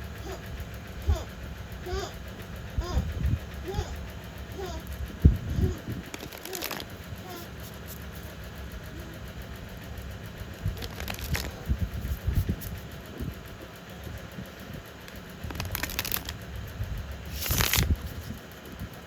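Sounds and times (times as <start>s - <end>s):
steady low hum: 0.0s - 19.0s
cards and paper rustling: 6.1s - 8.3s, 10.8s - 11.6s, 15.5s - 16.4s, 17.3s - 18.4s.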